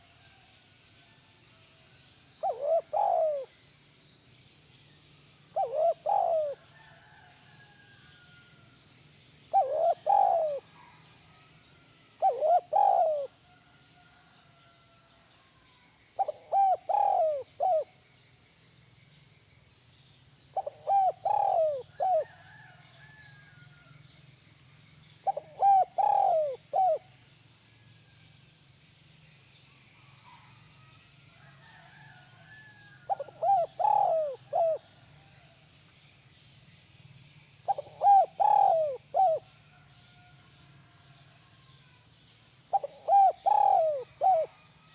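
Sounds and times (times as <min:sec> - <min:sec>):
dove cooing: 0:02.4 - 0:03.5, 0:05.5 - 0:06.6, 0:09.5 - 0:11.0, 0:12.2 - 0:13.4, 0:16.2 - 0:17.9, 0:20.6 - 0:22.6, 0:25.2 - 0:27.1, 0:33.1 - 0:35.0, 0:37.7 - 0:39.5, 0:42.7 - 0:44.6.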